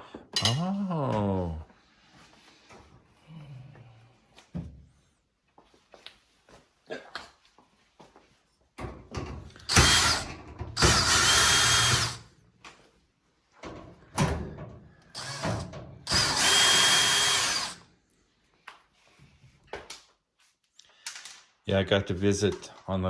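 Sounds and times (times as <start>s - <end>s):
power drill whining: 9.6s - 12.2s, 15.2s - 17.8s.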